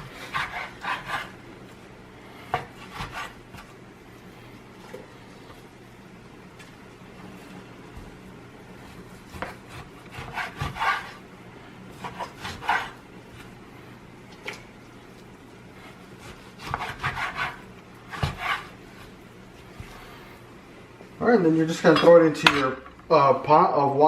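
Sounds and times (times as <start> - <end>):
knife sawing through raw meat: 0.0 - 1.4, 2.7 - 3.4, 8.9 - 11.2, 12.0 - 13.0, 15.8 - 18.8.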